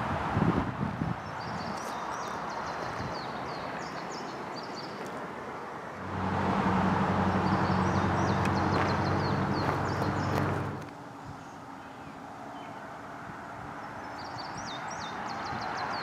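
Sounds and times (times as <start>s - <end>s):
small birds chirping: 1.2s - 5.8s, 7.2s - 13.1s, 13.7s - 16.0s
vehicle engine low hum: 6.0s - 14.4s.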